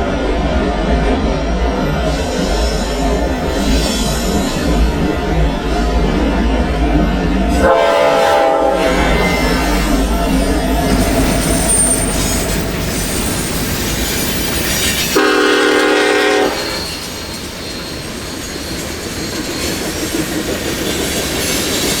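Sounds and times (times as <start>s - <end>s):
train rail and wheel noise: 0.0s - 22.0s
train air horn blast: 7.6s - 9.8s, 15.2s - 16.8s.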